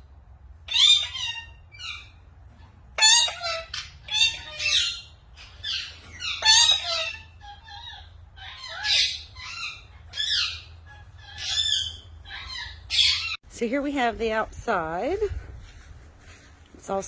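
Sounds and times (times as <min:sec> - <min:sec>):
parrots squawking: 0:00.6 - 0:13.4.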